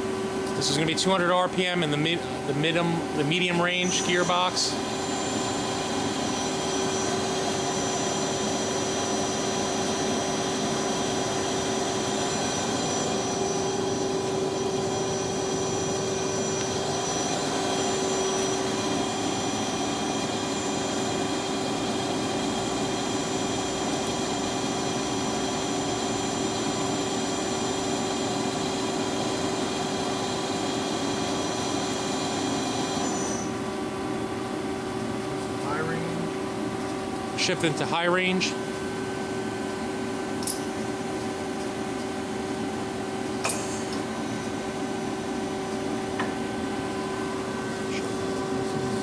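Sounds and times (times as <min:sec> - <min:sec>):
boring mill spindle whining: 0:01.2 - 0:35.6.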